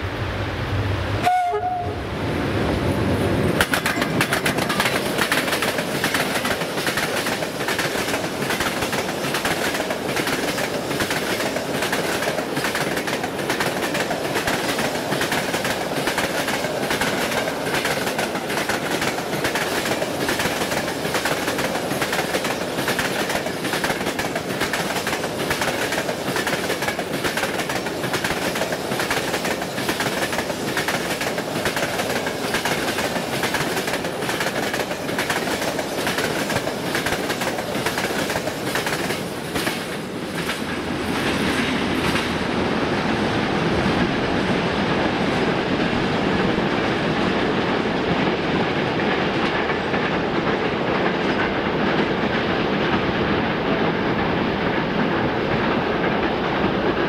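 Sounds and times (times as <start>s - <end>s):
train horn: 1.2s - 2.1s
train wheels clattering over rail joints: 3.4s - 42.4s.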